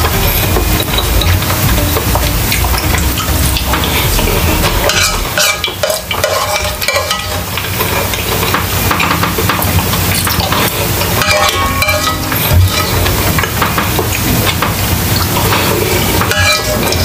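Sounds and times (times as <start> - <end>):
spoon scraping in bowl: 15.4 - 17.0.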